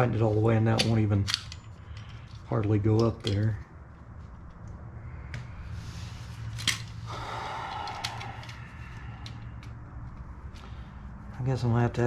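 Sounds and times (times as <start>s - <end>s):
steady low hum: 0.0s - 12.0s
short breathy rush: 5.0s - 9.6s.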